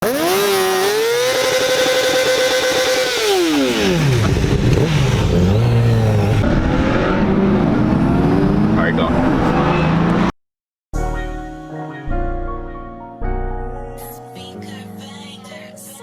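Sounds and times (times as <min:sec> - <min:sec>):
engine revving: 0:00.0 - 0:10.4.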